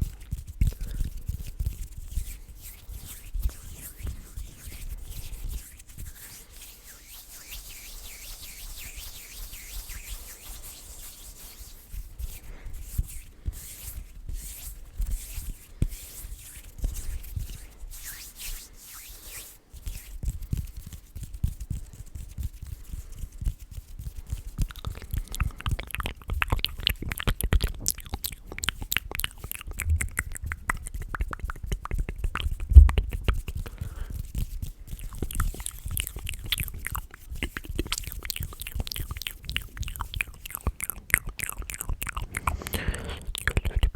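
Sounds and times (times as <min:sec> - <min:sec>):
hands rubbing: 0:00.0 - 0:43.9
wet mouth clicks and smacks: 0:24.0 - 0:43.9.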